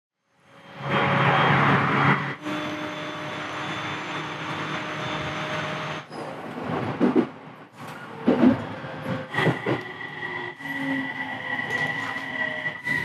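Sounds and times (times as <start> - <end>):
train rumble from inside carriage: 0.3 - 13.0
humming tones: 0.6 - 6.1.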